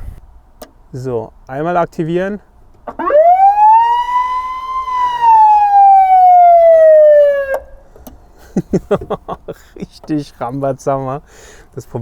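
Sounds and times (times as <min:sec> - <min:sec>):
police siren wail: 0:03.0 - 0:07.7.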